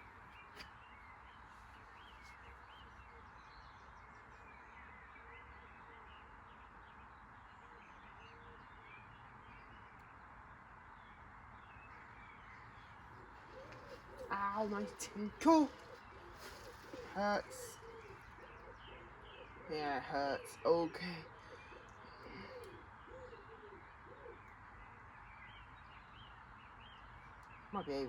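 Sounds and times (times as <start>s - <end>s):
faint bird chirps: 10.9s - 28.0s.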